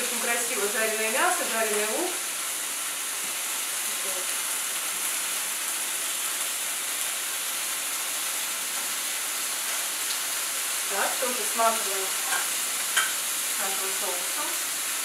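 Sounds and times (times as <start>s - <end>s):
skewers sizzling in a frying pan: 0.0s - 15.0s.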